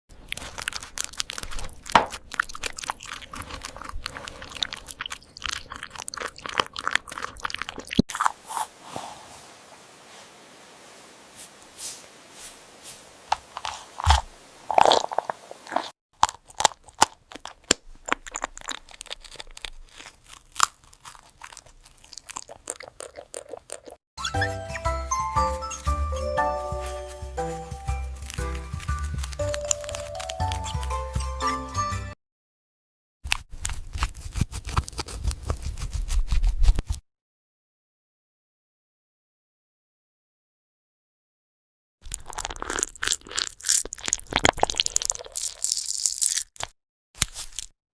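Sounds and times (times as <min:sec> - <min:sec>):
hedgehog crunchy chewing: 0:00.1 - 0:08.7, 0:13.3 - 0:24.0, 0:25.5 - 0:31.2, 0:33.3 - 0:37.0, 0:42.0 - 0:47.7.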